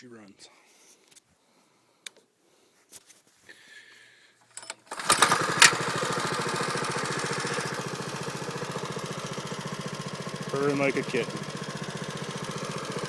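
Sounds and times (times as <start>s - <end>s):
mini bike engine starting and idling: 4.5s - 13.0s.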